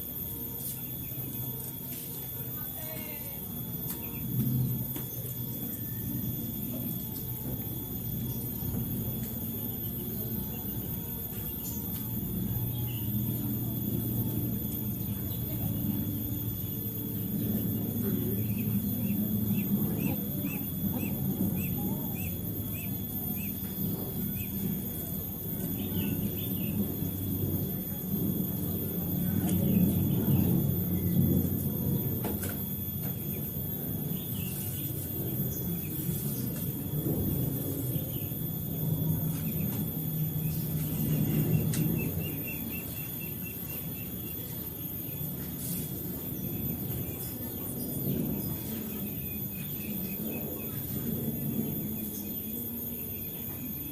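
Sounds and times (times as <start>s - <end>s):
insect buzz: 0.0s - 53.9s
bird chirping: 40.4s - 45.2s.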